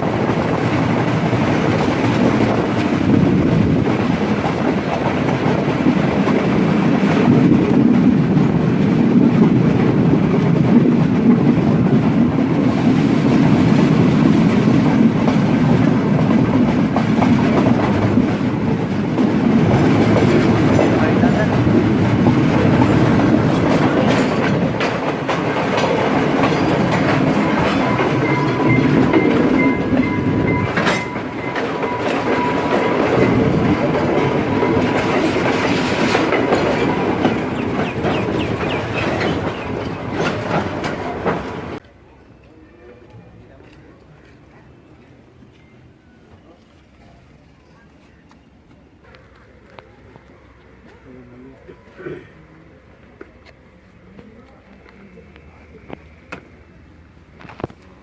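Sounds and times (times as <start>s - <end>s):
train wheels clattering over rail joints: 0.0s - 41.9s.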